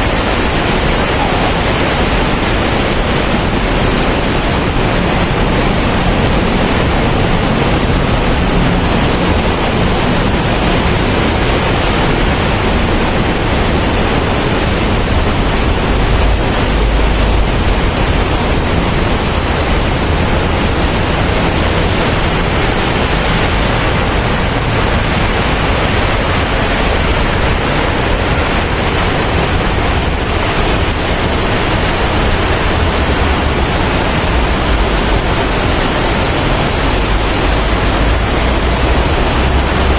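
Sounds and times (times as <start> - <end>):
waterfall pouring: 0.0 - 39.9.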